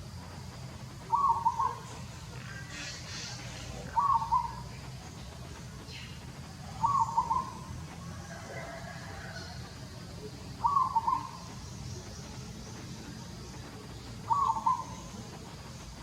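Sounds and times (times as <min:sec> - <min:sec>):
low background rumble: 0:00.0 - 0:16.0
bird calling: 0:01.0 - 0:04.8, 0:05.9 - 0:07.7, 0:10.6 - 0:11.6, 0:14.2 - 0:15.3.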